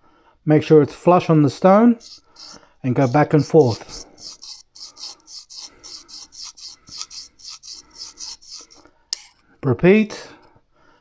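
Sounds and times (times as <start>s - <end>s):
knife scraping on whetstone: 2.0s - 9.4s.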